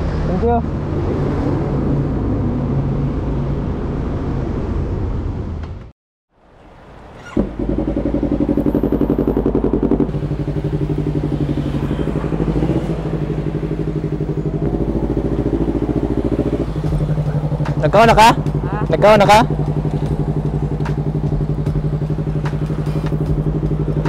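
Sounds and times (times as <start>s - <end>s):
motorcycle engine idling: 7.0s - 24.0s.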